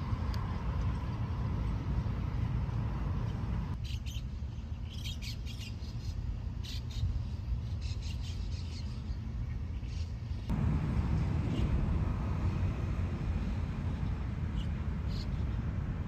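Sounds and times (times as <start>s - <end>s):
loud outdoor noise: 0.0s - 16.0s
small birds chirping: 3.8s - 10.6s
low rumble: 10.5s - 16.0s.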